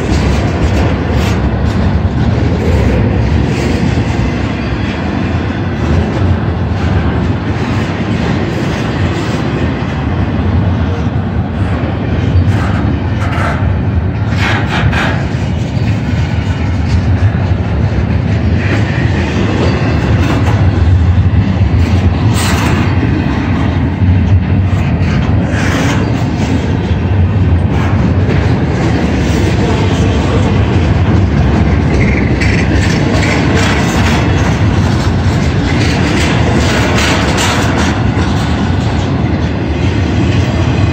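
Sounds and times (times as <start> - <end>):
freight train cars rumbling: 0.0 - 40.9
wheels clattering over rails: 0.0 - 40.9
rattling and clanking: 11.6 - 40.9.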